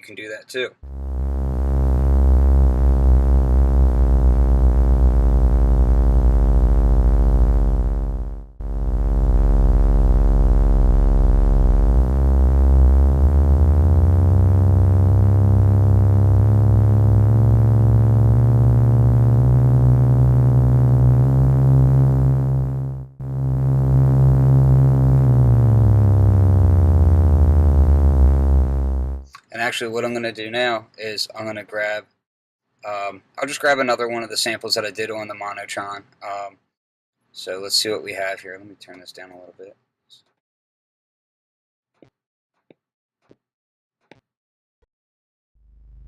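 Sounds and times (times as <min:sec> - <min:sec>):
buzzy synth note with wobble: 0:00.8 - 0:29.3.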